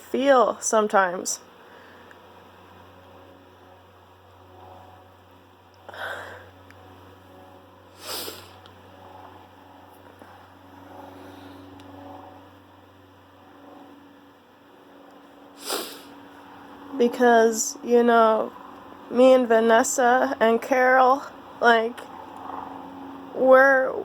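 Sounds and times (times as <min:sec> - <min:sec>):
low electrical hum: 0:00.0 - 0:24.0
person sniffing: 0:08.0 - 0:08.6, 0:15.6 - 0:16.2.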